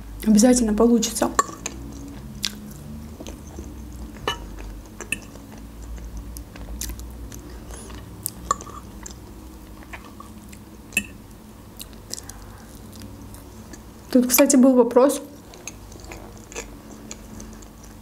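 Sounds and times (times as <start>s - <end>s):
chewing soft food: 1.4s - 11.2s, 11.8s - 14.1s, 15.3s - 18.0s
wet mouth clicks: 3.3s - 6.0s.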